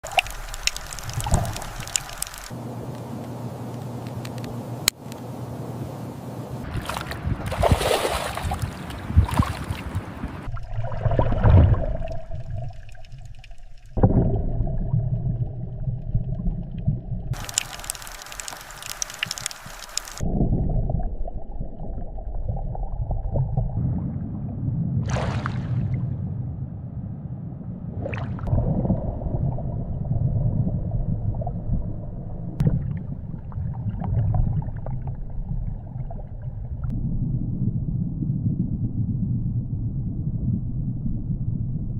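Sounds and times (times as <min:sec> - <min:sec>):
hissing burst of water: 0:00.0 - 0:02.6, 0:17.4 - 0:20.2
water whooshes: 0:00.0 - 0:02.6, 0:06.6 - 0:15.3, 0:23.8 - 0:26.2
underwater rumble and gurgling: 0:00.0 - 0:03.6, 0:06.5 - 0:41.9.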